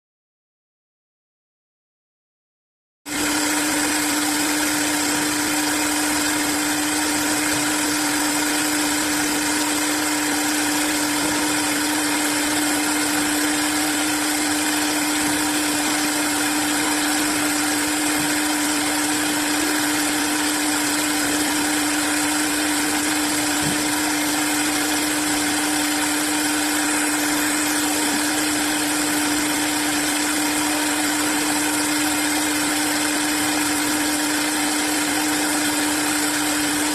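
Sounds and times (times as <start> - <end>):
lathe machine whirring: 3.1 - 36.9.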